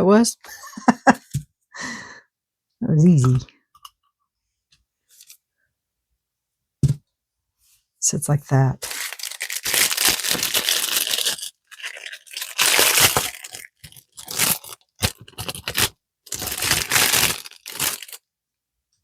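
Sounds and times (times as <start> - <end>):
crinkling and rustling handling noise: 8.8 - 18.2.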